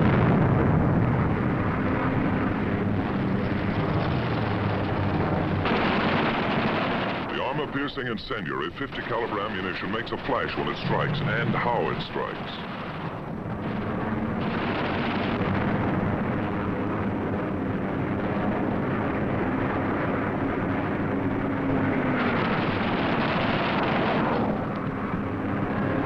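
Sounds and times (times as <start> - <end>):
fighter plane engine drone: 0.0 - 26.0
machine guns firing: 5.5 - 8.1, 14.4 - 15.8.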